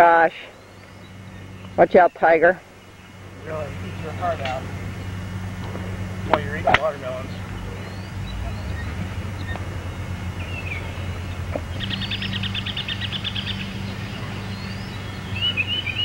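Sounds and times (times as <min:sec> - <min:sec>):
low hum: 0:00.0 - 0:16.0
fast bird trill: 0:07.2 - 0:16.0
high bird chirps: 0:07.2 - 0:16.0.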